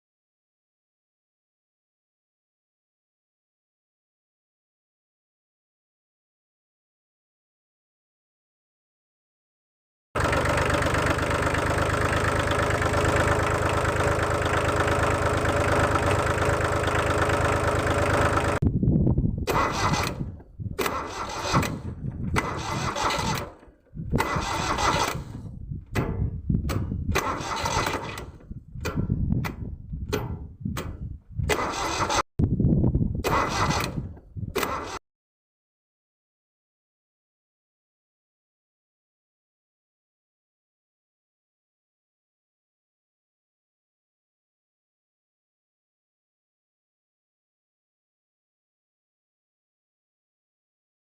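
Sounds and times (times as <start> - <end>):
engine running: 10.2 - 18.6, 19.3 - 32.2
short engine bursts: 10.2 - 18.6, 19.4 - 32.3, 33.2 - 35.0.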